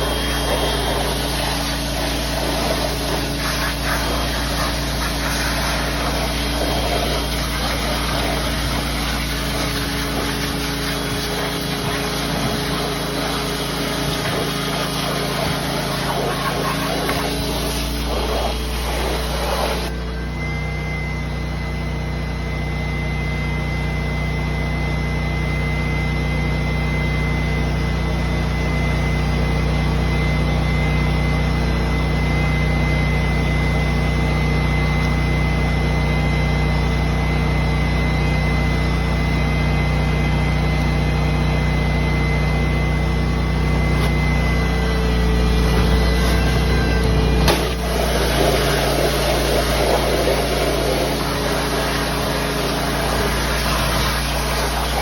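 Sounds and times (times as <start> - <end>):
thin high whine: 0.0 - 55.0
vacuum excavator engine droning: 0.0 - 55.0.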